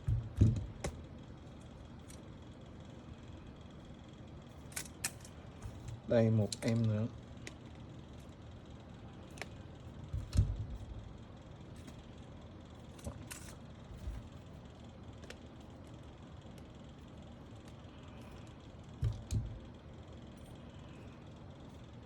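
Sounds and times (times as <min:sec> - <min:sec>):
dull thump: 0:00.0 - 0:00.8.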